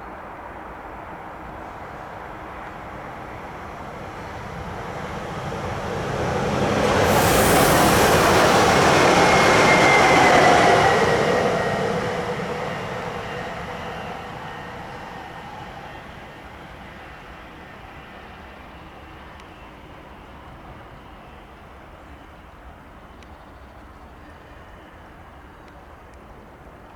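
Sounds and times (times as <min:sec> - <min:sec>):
train drive whine: 0:00.8 - 0:19.8
train wheels rolling on rails: 0:01.6 - 0:17.1.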